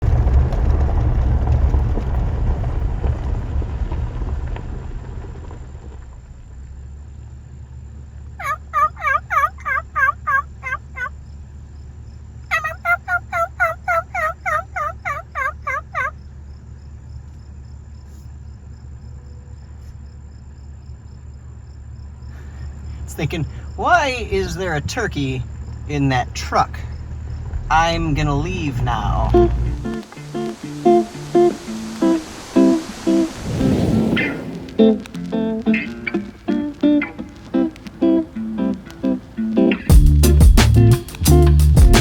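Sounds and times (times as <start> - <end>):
low rumble: 0.0 - 7.1, 23.4 - 35.8
turkey yelping: 8.4 - 11.2, 12.5 - 16.2.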